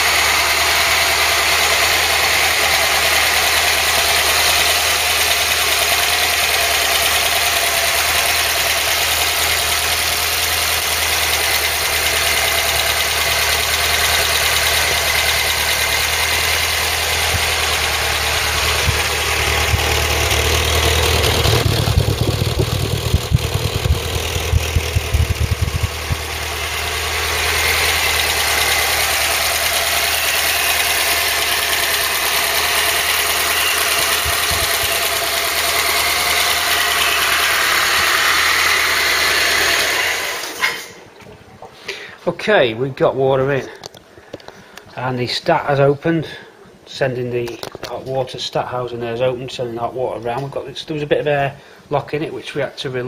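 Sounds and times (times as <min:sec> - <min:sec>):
car engine idling: 0:00.0 - 0:40.1
irregular low thumps: 0:17.2 - 0:26.6.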